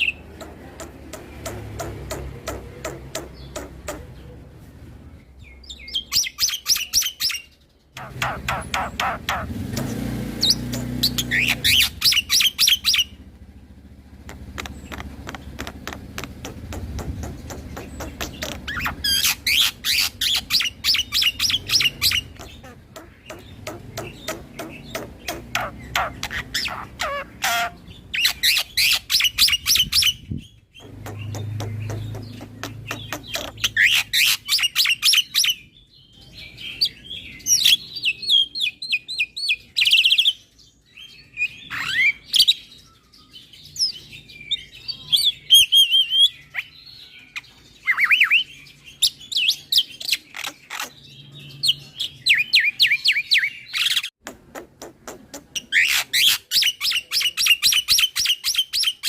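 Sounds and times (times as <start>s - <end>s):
bird chattering song: 0.0s - 4.6s, 5.3s - 59.0s
bird rapid clicking: 14.2s - 19.2s, 30.8s - 33.9s.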